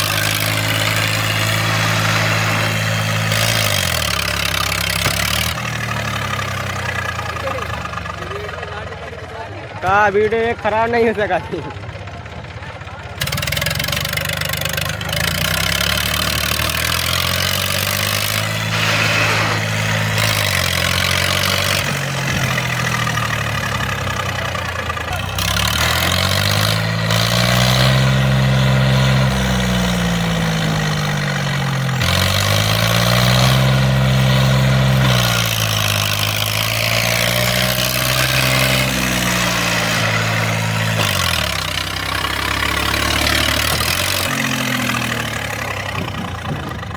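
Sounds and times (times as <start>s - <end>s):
tractor diesel engine revving: 0.0s - 46.9s.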